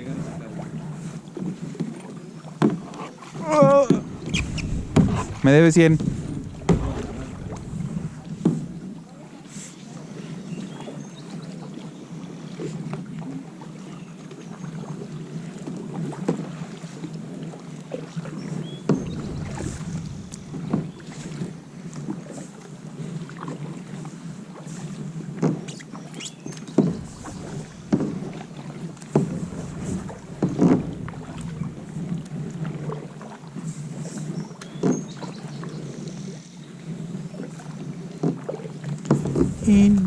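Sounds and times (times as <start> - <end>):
paddle splashing in water: 0.0 - 40.0
low rushing noise: 4.3 - 8.9, 19.0 - 21.6.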